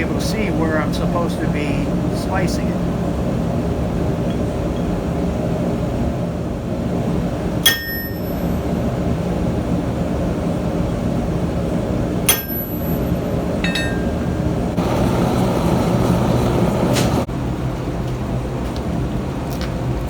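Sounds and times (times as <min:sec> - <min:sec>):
steady low rumble: 0:00.0 - 0:20.0
hammer ringing on steel bar: 0:07.6 - 0:08.5, 0:12.3 - 0:14.4.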